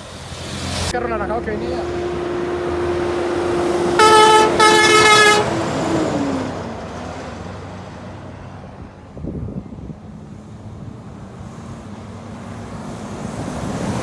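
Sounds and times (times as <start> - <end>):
truck engine passing: 0.0 - 14.0
truck horn blasts: 1.8 - 6.1.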